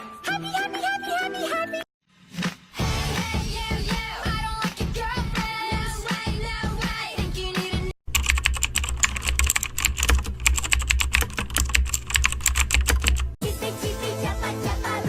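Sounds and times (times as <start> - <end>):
pop music: 2.8 - 8.0, 13.4 - 15.0
computer keyboard typing: 8.1 - 13.4.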